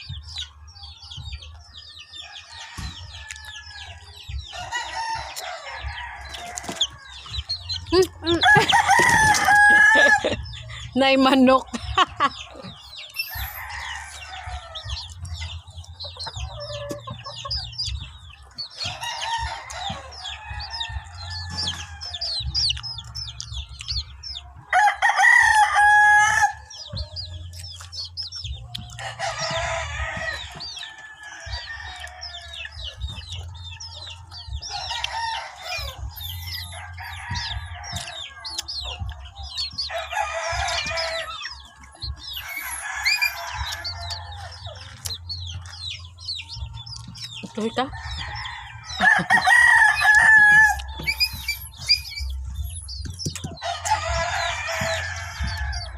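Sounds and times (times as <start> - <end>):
chickens clucking: 0.0 - 55.9
rooster crowing: 8.4 - 10.4, 13.2 - 15.1, 24.7 - 26.7, 29.0 - 32.8, 39.9 - 44.8, 48.0 - 52.4, 53.6 - 55.9.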